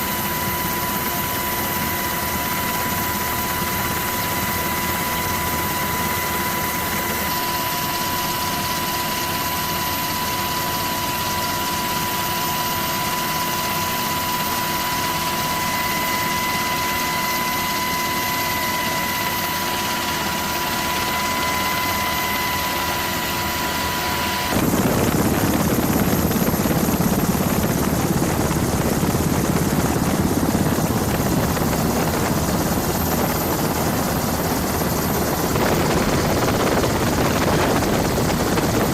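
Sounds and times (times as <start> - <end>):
turbine engine rush: 17.7 - 38.9
high engine whine: 20.2 - 34.1.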